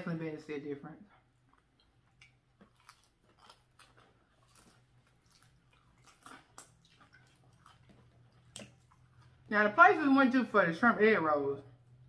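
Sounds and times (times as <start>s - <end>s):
people chewing and smacking: 1.2s - 9.5s.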